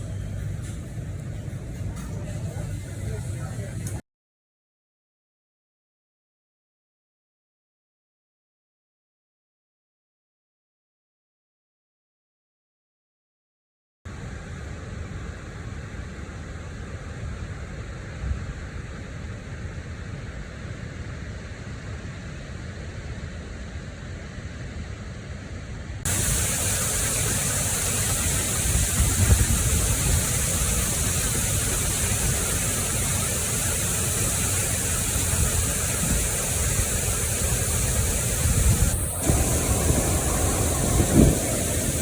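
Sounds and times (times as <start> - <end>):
steady rushing noise: 26.0 - 42.0.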